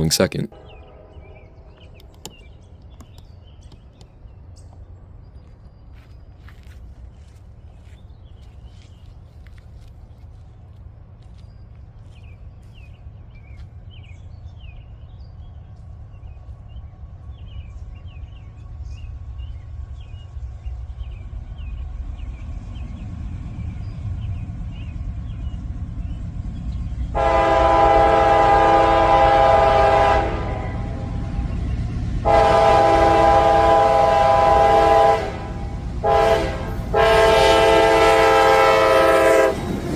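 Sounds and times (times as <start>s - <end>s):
diesel locomotive engine and rail rumble: 0.0s - 39.9s
train horn blast: 27.2s - 31.2s, 32.2s - 39.6s.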